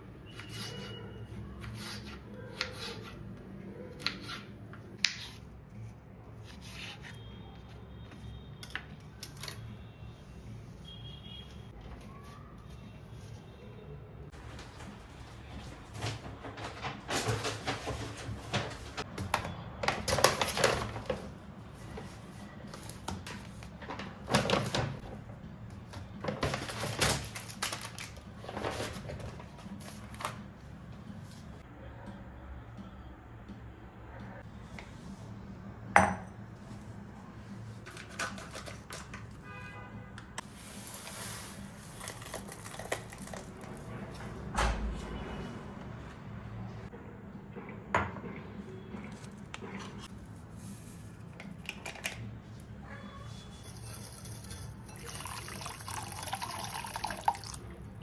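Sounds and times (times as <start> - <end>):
tableware clinking: 36.0 - 36.4, 53.6 - 56.8.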